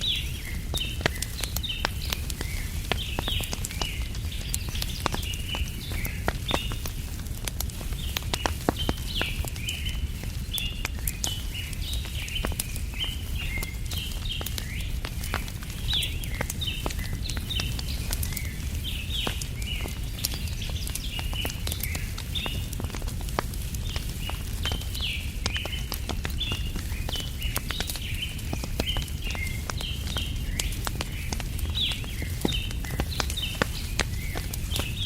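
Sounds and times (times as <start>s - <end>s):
small birds chirping: 0.0s - 35.0s
wood fire crackling and popping: 0.0s - 35.0s.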